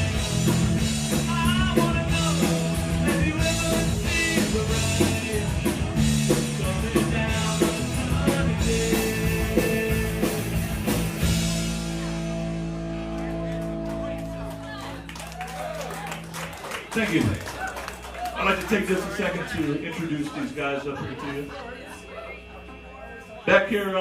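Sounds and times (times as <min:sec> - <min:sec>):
punk rock band playing: 0:00.0 - 0:24.0
person singing: 0:01.1 - 0:10.6.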